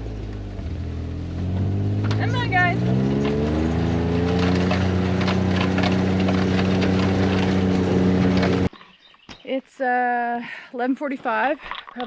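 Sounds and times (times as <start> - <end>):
vehicle engine speeding up: 0.0 - 8.7
light rattling: 1.5 - 8.7.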